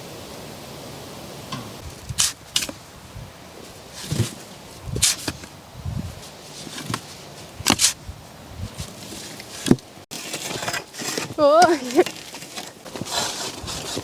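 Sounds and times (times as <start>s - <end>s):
thuds of sand being worked: 1.5s - 2.9s, 3.7s - 8.1s, 8.7s - 14.0s
sand scraping: 1.7s - 3.0s, 3.6s - 14.0s.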